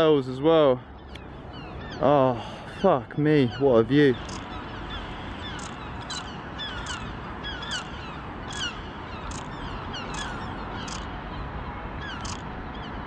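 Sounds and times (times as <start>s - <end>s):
bird calling: 0.0s - 13.0s
steady background hiss: 0.0s - 13.0s.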